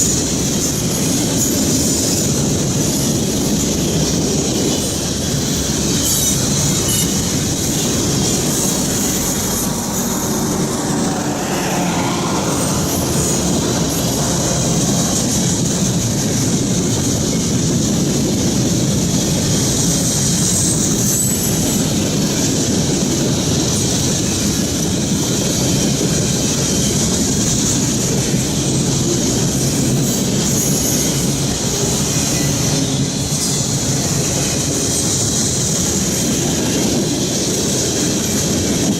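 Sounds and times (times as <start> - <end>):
freight cars rumbling on rails: 0.0 - 38.9
high-pitched wheel squeal: 5.9 - 16.4.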